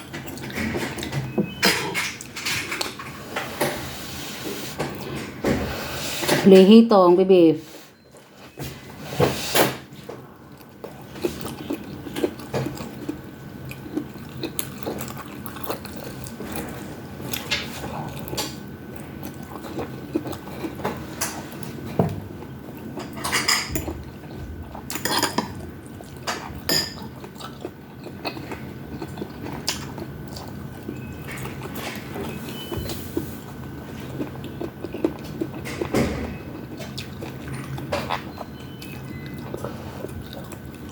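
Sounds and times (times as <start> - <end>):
utensils clinking against bowl: 23.0 - 23.9, 24.9 - 25.6, 26.3 - 27.2.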